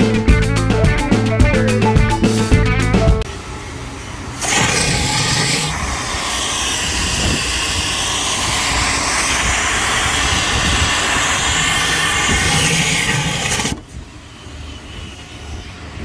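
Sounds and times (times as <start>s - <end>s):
rush of air from blower: 3.4s - 16.0s.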